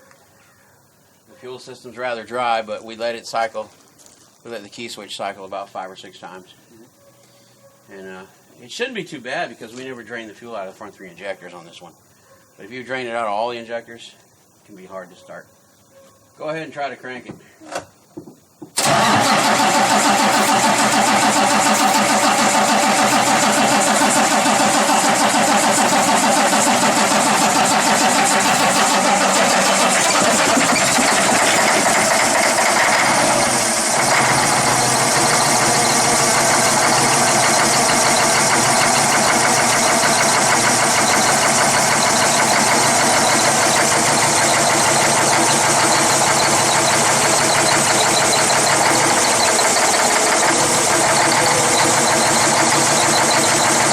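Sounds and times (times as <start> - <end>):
diesel engine starting and idling rough: 18.8 - 53.9.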